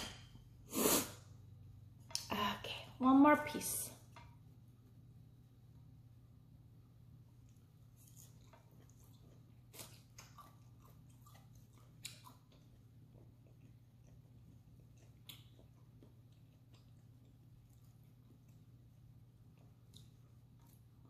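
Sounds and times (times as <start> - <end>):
low steady hum: 0.0 - 21.0
faint chewing: 7.4 - 21.0.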